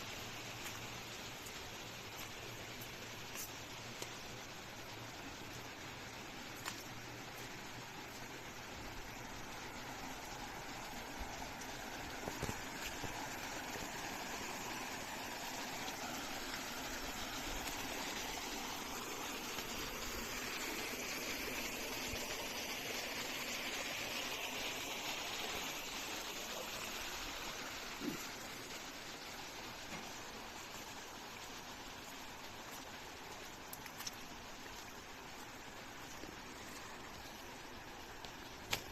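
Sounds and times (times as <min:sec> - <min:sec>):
stream water flowing: 0:00.0 - 0:38.9.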